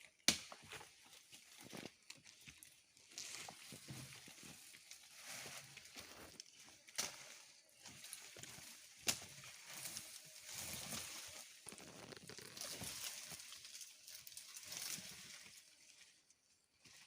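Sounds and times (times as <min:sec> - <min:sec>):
hand tool scraping soil: 0:07.8 - 0:15.2.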